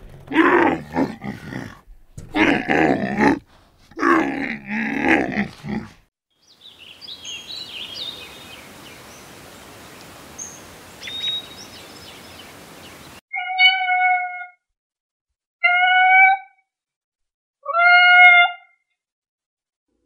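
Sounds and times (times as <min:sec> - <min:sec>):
camel grunting: 0:00.0 - 0:06.0
small birds chirping: 0:06.4 - 0:13.2
outdoor air hiss: 0:06.6 - 0:13.2.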